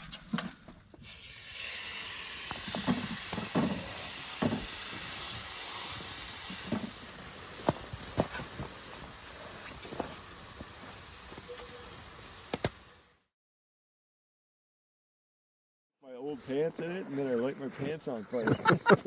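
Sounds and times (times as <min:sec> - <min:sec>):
food sizzling in a pan: 0:01.0 - 0:13.1.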